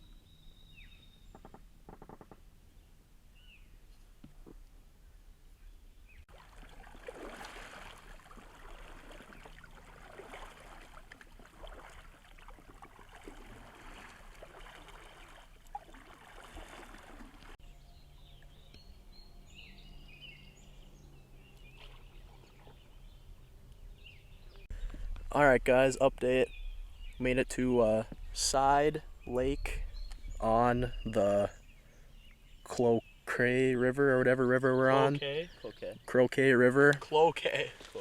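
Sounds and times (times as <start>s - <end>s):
river water splashing: 6.3s - 17.6s, 20.6s - 23.8s
small birds chirping: 17.6s - 38.0s.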